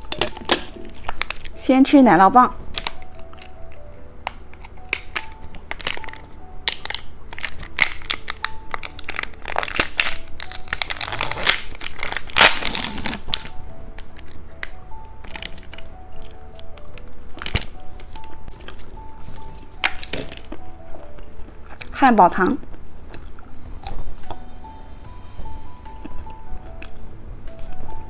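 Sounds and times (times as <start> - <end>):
soft background music: 0.0 - 28.0
candy wrapper crinkling: 2.6 - 22.0
person eating crunchy candy: 2.7 - 21.9.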